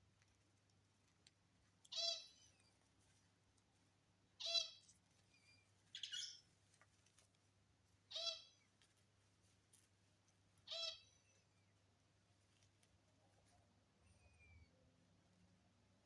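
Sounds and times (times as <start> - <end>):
lovebird chirping: 1.9 - 2.7, 4.4 - 6.5, 8.1 - 8.6, 10.6 - 11.6.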